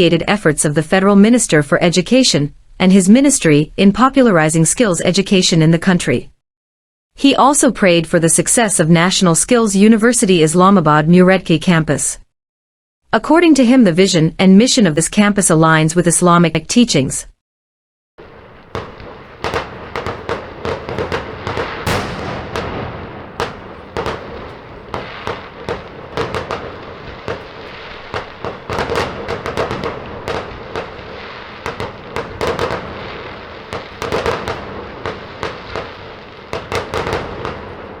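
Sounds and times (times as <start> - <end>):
continuous crackling din: 18.2 - 38.0
sharp pops and cracks: 18.2 - 38.0.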